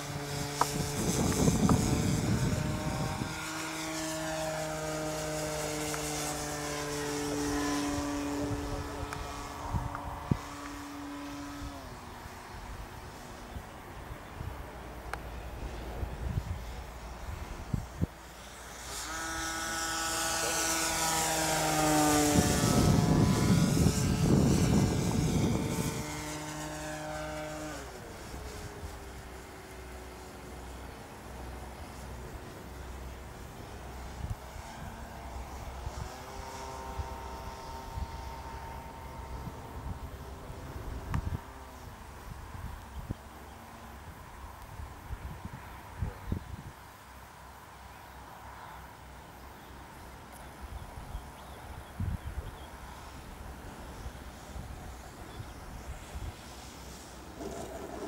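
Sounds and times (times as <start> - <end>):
model airplane motor droning: 0.0 - 58.0.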